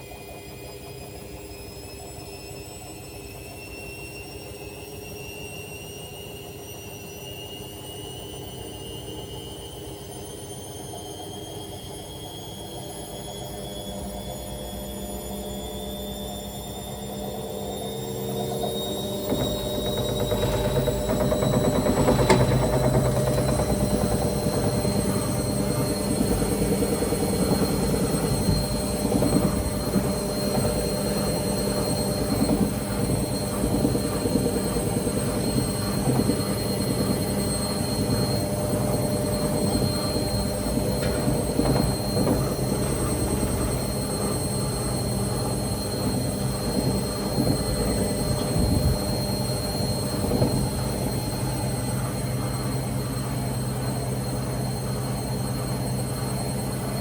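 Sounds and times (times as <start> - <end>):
high whine: 12.0 - 57.0
washing machine drum spinning: 12.9 - 57.0.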